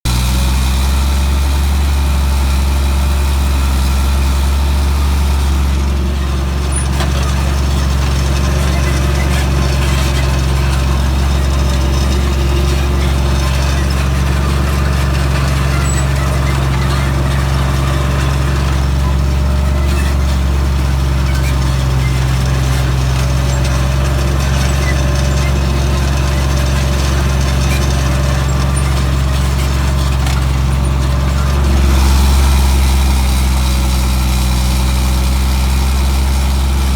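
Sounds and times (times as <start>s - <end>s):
tractor diesel engine droning: 0.0s - 36.9s.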